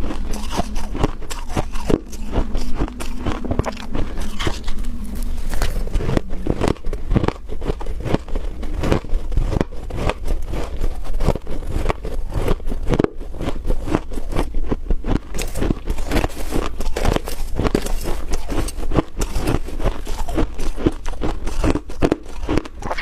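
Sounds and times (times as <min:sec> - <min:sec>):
frost crunching when chewed: 0:00.0 - 0:23.0.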